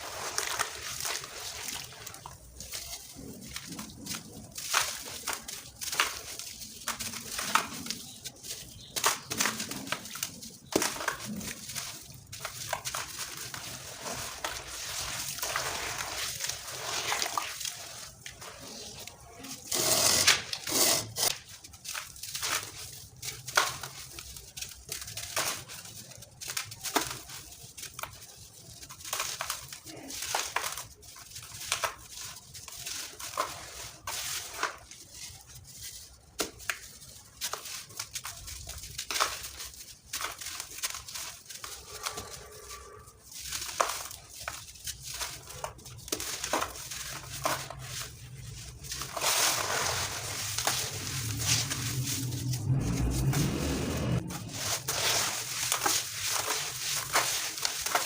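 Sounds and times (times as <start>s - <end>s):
dry cement pieces crunching: 0.0s - 58.0s.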